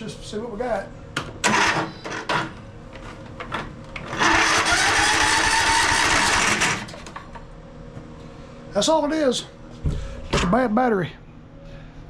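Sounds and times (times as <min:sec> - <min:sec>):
engine starter cranking: 0:01.4 - 0:02.4, 0:04.1 - 0:07.0.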